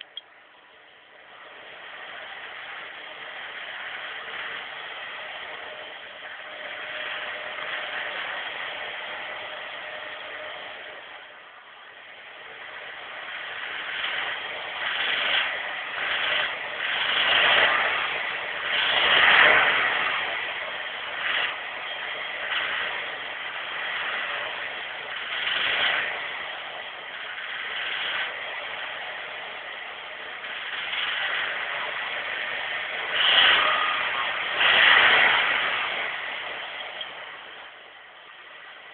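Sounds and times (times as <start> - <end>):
car engine idling and revving: 0.0 - 38.9
engine knocking: 12.0 - 38.9.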